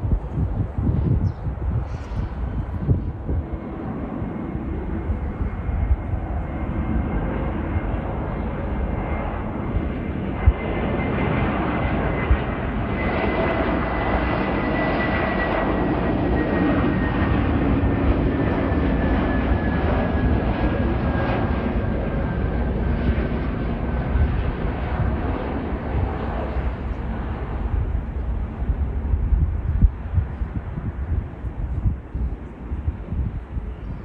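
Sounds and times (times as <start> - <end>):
jet engines rumbling and whining: 0.0 - 34.0.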